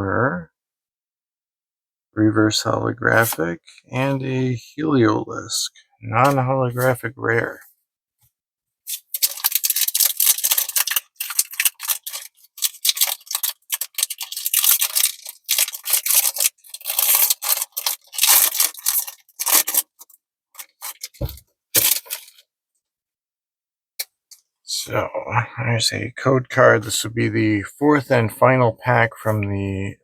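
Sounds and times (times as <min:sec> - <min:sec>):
foil wrapper crinkling and tearing: 0:08.9 - 0:22.4.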